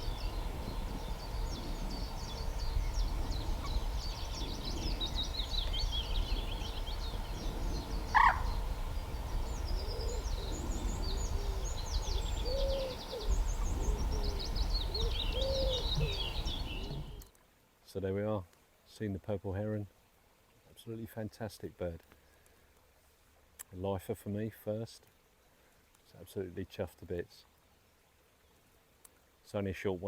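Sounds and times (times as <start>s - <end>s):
low cooing calls: 0.0s - 17.2s
low steady rumble: 0.0s - 17.2s
songbirds singing: 0.0s - 17.2s.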